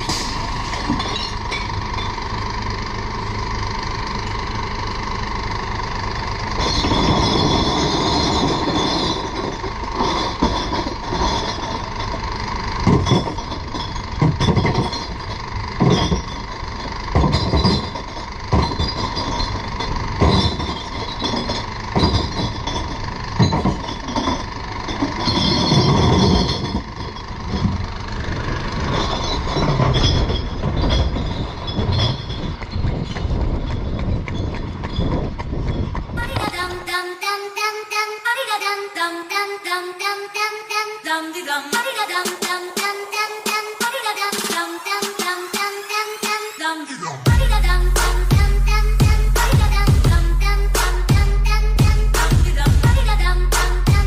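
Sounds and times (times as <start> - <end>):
glass bottles crashing: 0.0 - 2.2, 6.6 - 27.8, 28.9 - 33.6
recycling truck running: 0.0 - 54.0.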